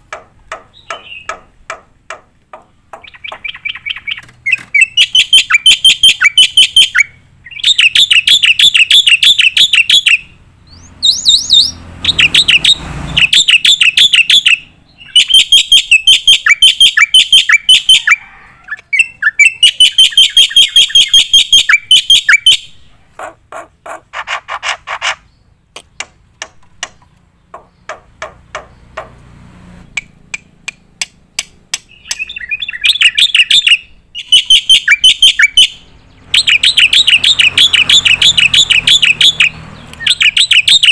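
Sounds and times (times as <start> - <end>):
bird singing sharp repeated notes: 0.0 - 22.9, 23.5 - 40.9
bird clicks: 30.0 - 32.3.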